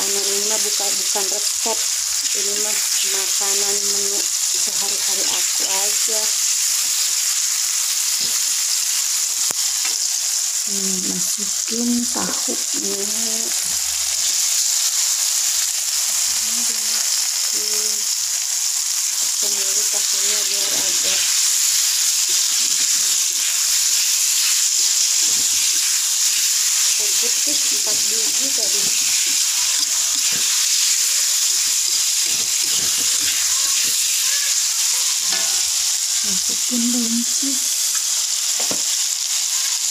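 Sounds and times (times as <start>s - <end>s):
frying hiss in a wok: 0.0s - 39.9s
spatula scraping a pan: 20.8s - 21.4s, 27.1s - 35.6s.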